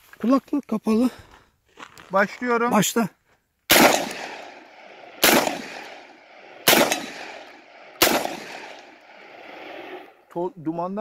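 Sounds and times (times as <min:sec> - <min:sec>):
shotgun shots with echo: 0:03.7 - 0:09.0.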